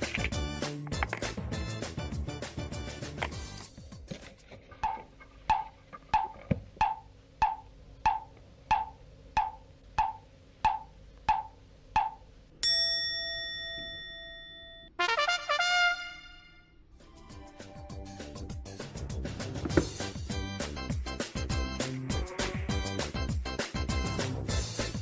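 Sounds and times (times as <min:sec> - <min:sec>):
wood-block ticks: 0:04.8 - 0:12.2
bell-like chime: 0:12.6 - 0:14.9.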